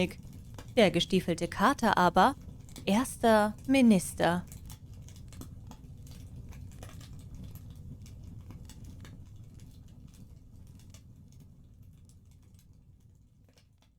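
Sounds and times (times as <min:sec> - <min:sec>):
wood fire crackling: 0:00.0 - 0:13.7.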